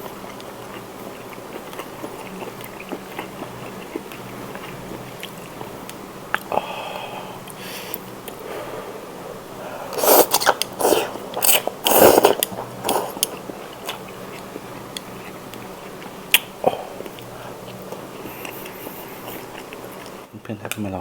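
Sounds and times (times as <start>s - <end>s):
chewing: 0.0s - 6.7s, 9.9s - 20.3s
loud slurping: 8.4s - 13.3s.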